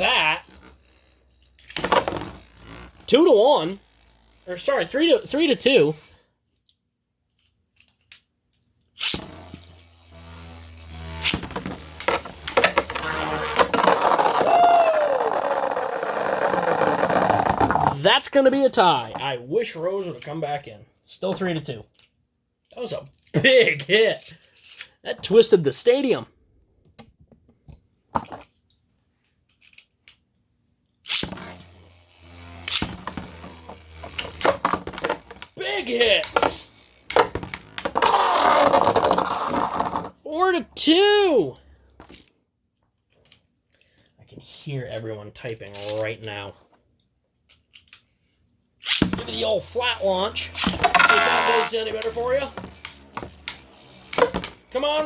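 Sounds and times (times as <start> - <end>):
spinning tops whirring and scraping: 0.0 - 6.3, 8.9 - 20.4, 31.0 - 42.3, 48.8 - 55.0
spinning tops clashing: 48.8 - 55.0.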